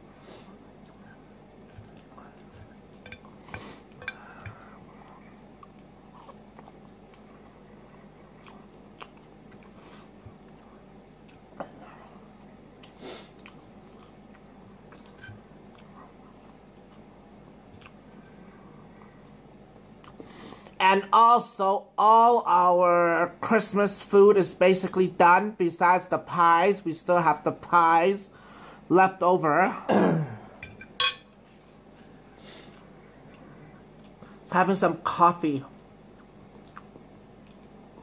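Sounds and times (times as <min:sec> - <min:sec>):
person chewing food: 0:00.1 - 0:20.8, 0:31.3 - 0:34.4, 0:35.7 - 0:38.0.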